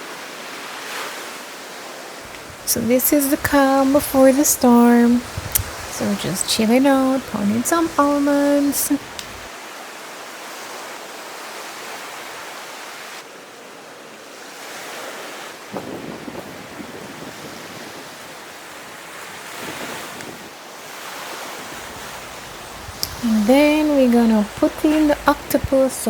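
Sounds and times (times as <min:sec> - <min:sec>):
surf washing on shore: 0:00.0 - 0:26.0
wind buffeting microphone: 0:02.2 - 0:09.5, 0:15.7 - 0:20.5, 0:21.5 - 0:26.0.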